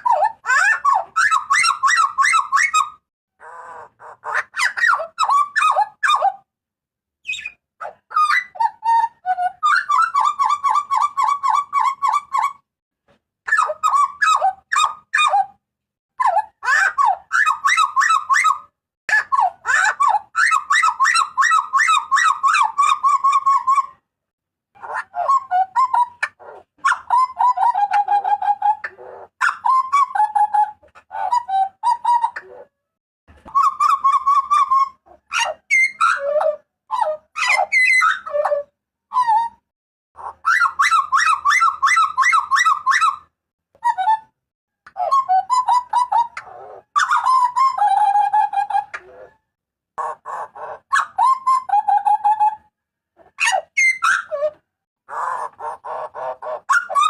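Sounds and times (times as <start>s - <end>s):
butcherbird harsh repeated calls: 55.1s - 57.0s.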